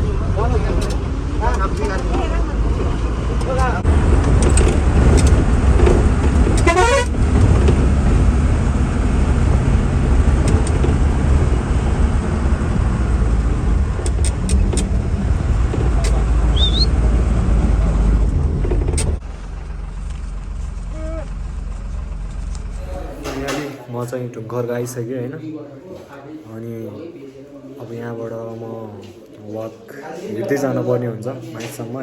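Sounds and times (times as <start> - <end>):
bus engine and road noise: 0.0 - 24.0
wavering horn blast: 6.4 - 7.3.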